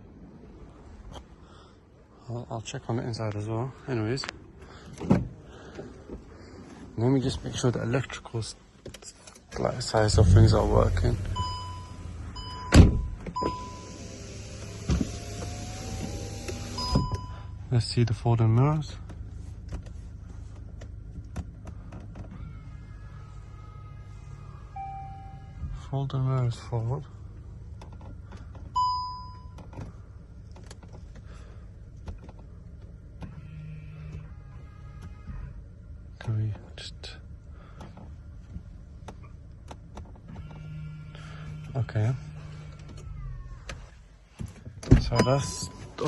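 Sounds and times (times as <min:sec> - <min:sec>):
power window motor whine: 0:10.1 - 0:17.2, 0:22.3 - 0:25.7.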